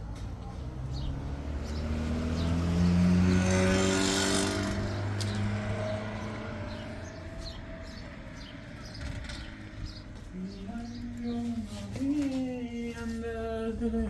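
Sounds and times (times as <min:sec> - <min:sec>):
vehicle engine rising in pitch: 0:00.6 - 0:09.4.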